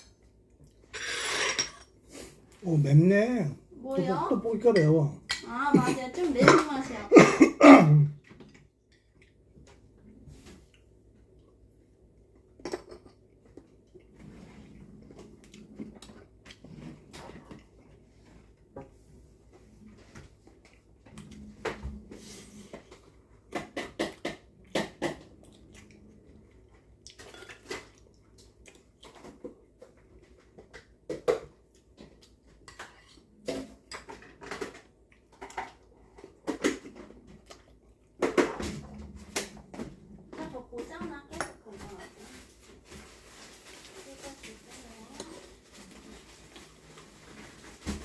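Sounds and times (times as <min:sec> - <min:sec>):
dishes and cutlery clinking: 0:00.9 - 0:02.0, 0:27.2 - 0:28.0.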